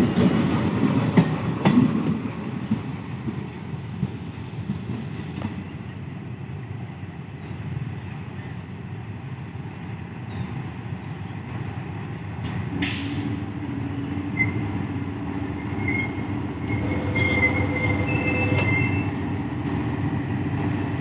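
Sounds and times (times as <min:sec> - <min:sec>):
train rumble: 0:00.0 - 0:21.0
locomotive engine droning: 0:11.5 - 0:21.0
wheels squealing: 0:14.3 - 0:19.2.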